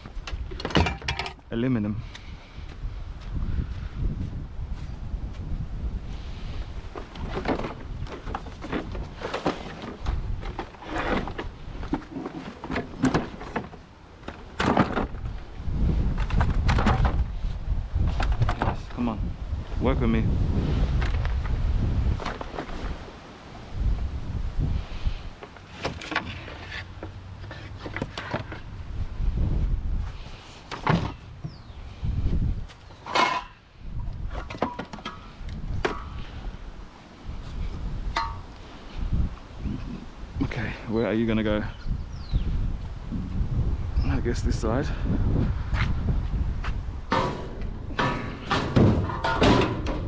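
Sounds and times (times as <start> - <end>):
wind rumble on microphone: 0.0 - 50.0
scrap metal knocking and rattling: 0.1 - 1.4, 33.0 - 33.7, 38.1 - 38.5, 47.1 - 50.0
hard objects knocking: 38.2 - 38.5.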